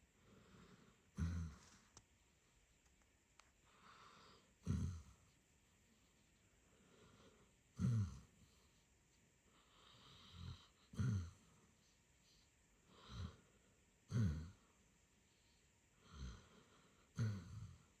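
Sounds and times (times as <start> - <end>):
dog snoring: 0.2 - 1.9, 3.7 - 5.4, 6.8 - 8.7, 9.6 - 11.7, 12.3 - 14.7, 16.0 - 18.0.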